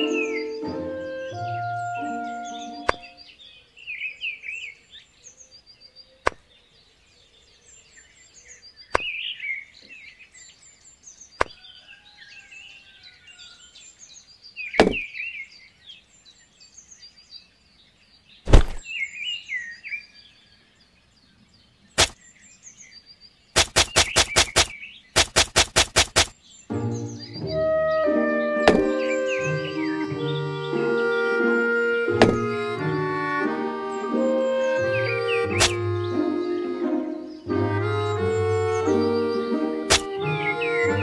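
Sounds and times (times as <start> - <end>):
small birds chirping: 0.0 - 41.0
sharp knocks: 14.8 - 15.0, 23.6 - 26.3, 28.7 - 29.1, 32.2 - 32.6, 35.6 - 35.8, 39.9 - 40.2
fast even taps: 23.6 - 26.3, 32.2 - 32.6, 39.9 - 40.2.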